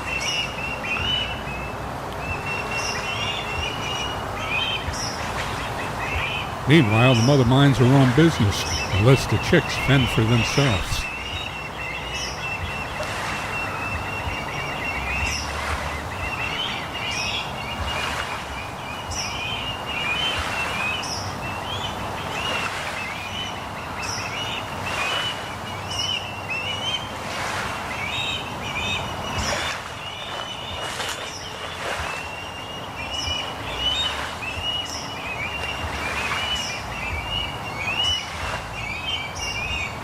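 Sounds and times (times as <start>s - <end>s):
ospreys chirping: 4.4s - 12.8s.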